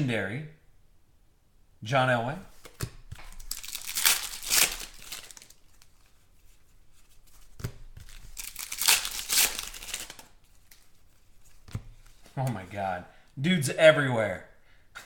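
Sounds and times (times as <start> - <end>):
card pack wrappers tearing: 2.6 - 6.1, 7.4 - 12.2.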